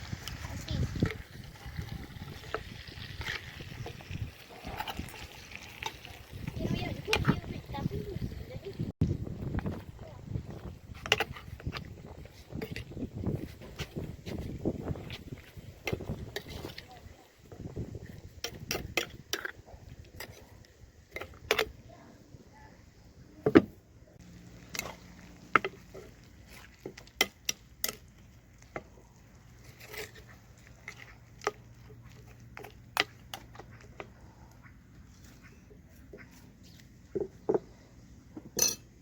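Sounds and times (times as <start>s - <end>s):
utensils and dishes clinking: 38.5s - 38.9s.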